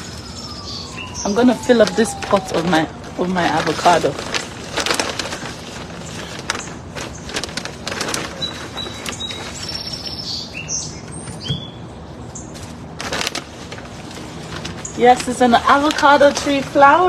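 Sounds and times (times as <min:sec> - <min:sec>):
small birds chirping: 0:00.0 - 0:02.2, 0:08.4 - 0:12.6
rustling and scraping: 0:01.9 - 0:10.1, 0:12.2 - 0:16.8.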